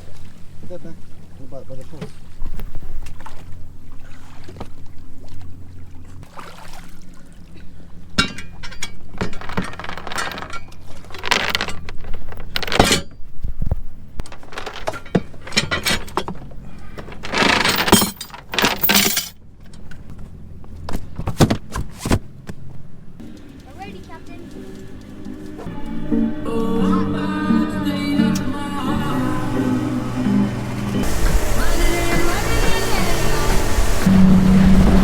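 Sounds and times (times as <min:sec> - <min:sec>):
hard objects clattering: 0:09.2 - 0:13.0, 0:14.3 - 0:19.4
low steady hum: 0:22.8 - 0:35.0.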